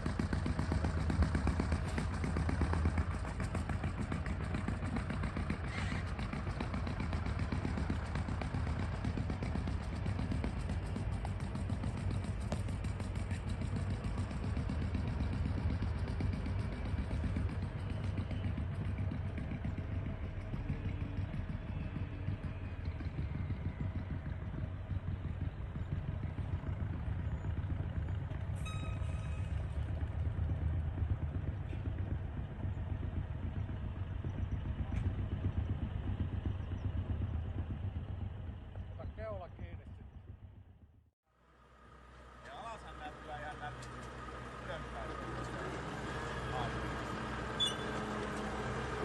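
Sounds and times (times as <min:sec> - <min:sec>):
engine running under load: 0:00.0 - 0:49.0.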